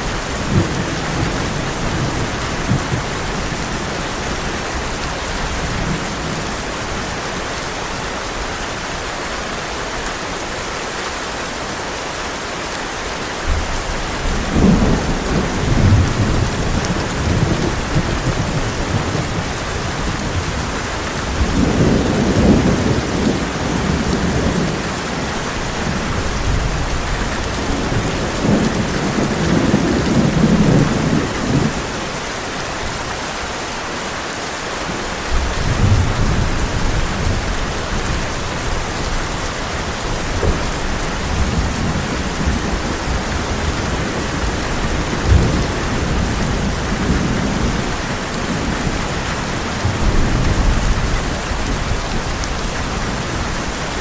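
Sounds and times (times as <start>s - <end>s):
heavy rain on a tin roof: 0.0s - 54.0s
thunder rolling: 13.5s - 32.0s.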